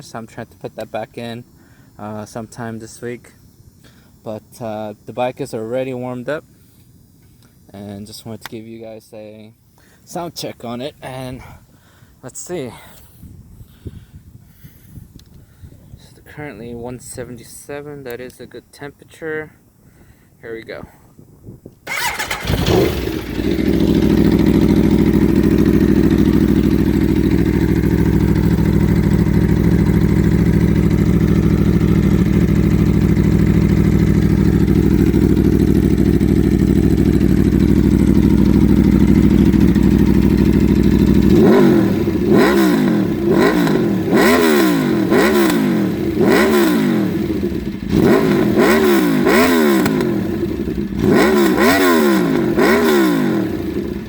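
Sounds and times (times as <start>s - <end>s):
motorcycle engine idling and revving: 21.9s - 54.0s.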